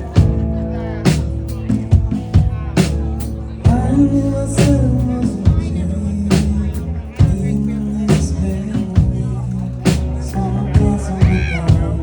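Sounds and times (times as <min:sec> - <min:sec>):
drum-kit hits: 0:00.0 - 0:09.3
dream-pop band playing: 0:00.0 - 0:12.0.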